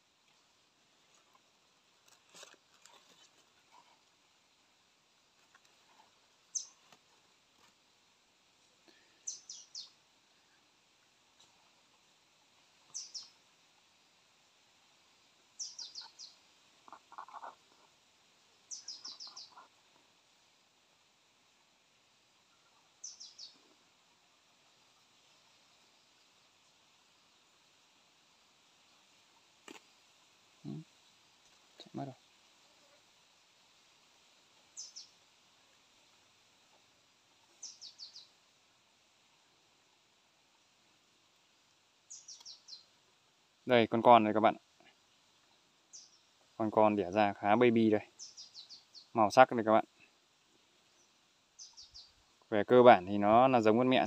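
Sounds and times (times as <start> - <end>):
faint forest hiss: 0.0 - 54.0
small bird chirps: 6.5 - 6.9, 9.2 - 10.0, 12.8 - 13.4, 15.6 - 17.9, 18.6 - 19.8, 22.5 - 23.8, 30.6 - 31.0, 34.7 - 35.2, 37.5 - 38.4, 42.1 - 42.9, 45.9 - 46.4, 48.1 - 49.2, 50.8 - 52.3
low stuttering bird calls: 15.6 - 17.9, 18.7 - 19.8, 30.6 - 31.0.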